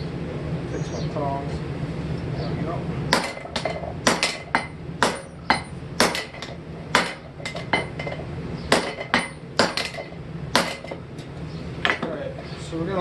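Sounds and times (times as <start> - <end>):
hammer striking steel on anvil: 3.1 - 11.0.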